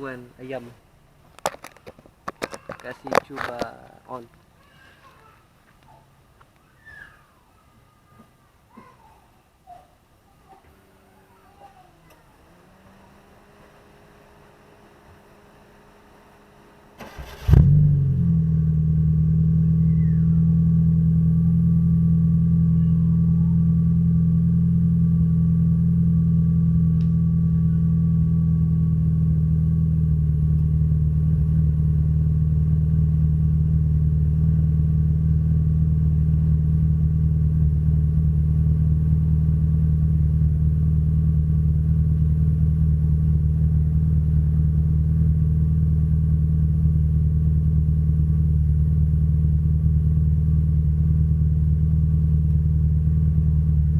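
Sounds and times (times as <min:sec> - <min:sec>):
car engine starting and idling: 0:12.0 - 0:53.9.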